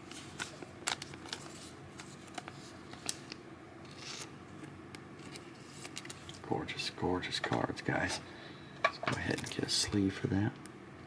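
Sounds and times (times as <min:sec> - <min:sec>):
cards clicking and rustling: 0:00.0 - 0:06.4.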